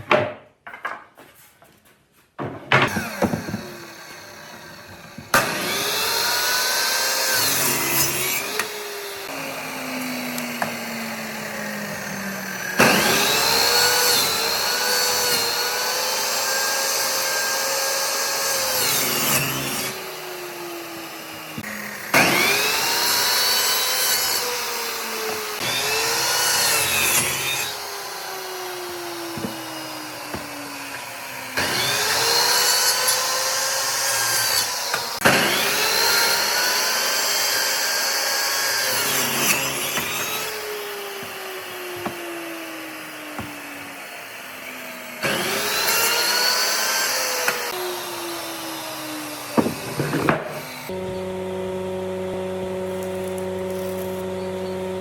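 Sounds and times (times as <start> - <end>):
power tool motor whining: 19.0 - 32.6, 47.4 - 55.0.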